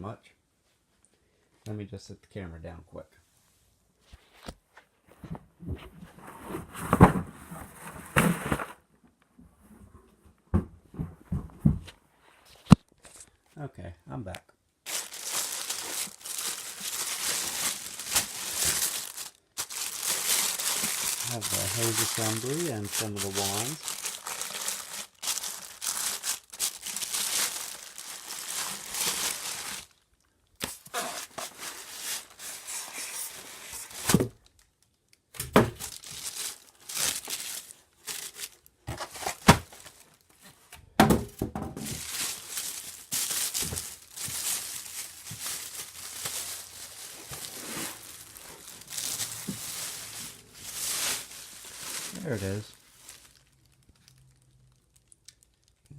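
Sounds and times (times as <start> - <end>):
packaging crinkling and tearing: 6.4 - 8.8, 14.8 - 40.5, 41.8 - 55.9.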